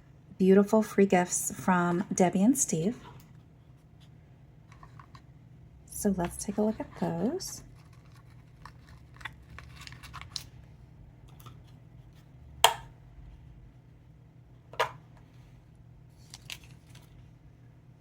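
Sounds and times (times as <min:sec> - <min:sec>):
packaging rustling: 0:07.7 - 0:10.5, 0:16.2 - 0:17.2.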